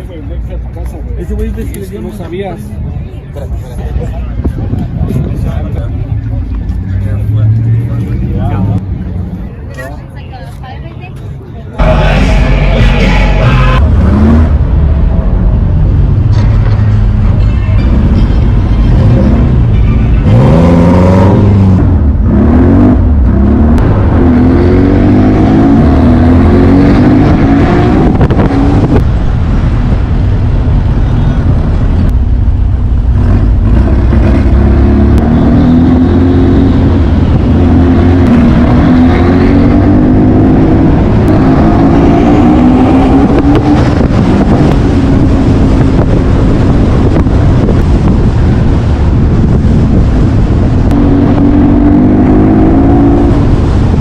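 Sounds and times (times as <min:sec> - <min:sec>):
car engine revving: 0:11.8 - 0:54.0.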